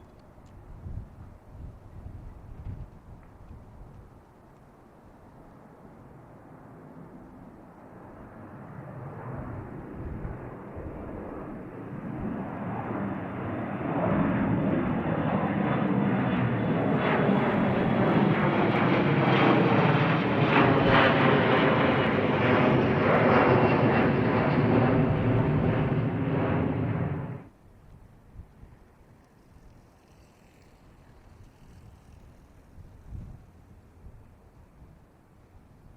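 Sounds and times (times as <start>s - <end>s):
jet engines roaring: 5.8s - 27.5s.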